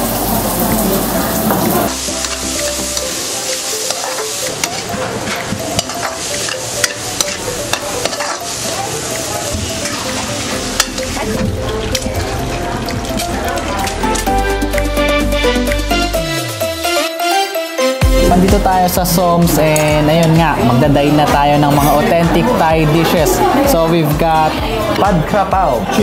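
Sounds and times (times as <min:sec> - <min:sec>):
oil sizzling in a pan: 0:00.0 - 0:13.2.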